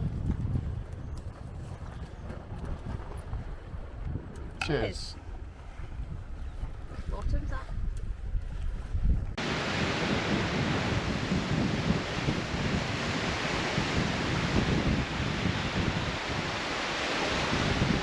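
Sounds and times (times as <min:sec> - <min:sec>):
wind buffeting microphone: 0:00.0 - 0:18.0
surf washing: 0:09.4 - 0:18.0.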